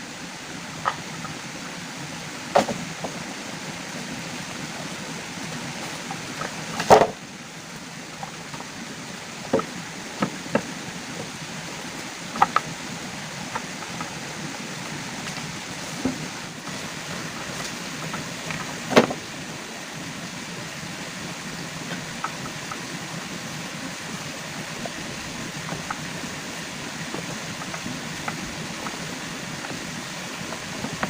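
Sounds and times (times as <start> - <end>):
rushing water: 0.0 - 31.0.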